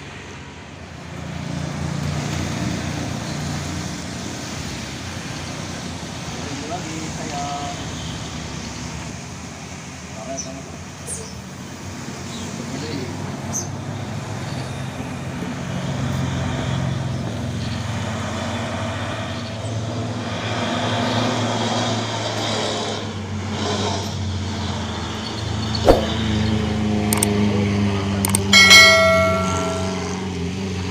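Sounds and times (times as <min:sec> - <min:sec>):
sharp knock: 0:25.8 - 0:26.2, 0:28.6 - 0:30.2.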